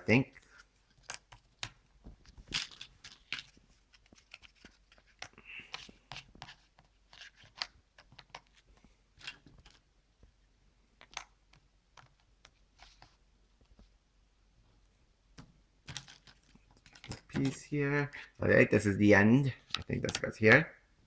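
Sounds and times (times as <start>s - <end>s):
puzzle pieces tapping and clicking: 15.9s - 17.6s.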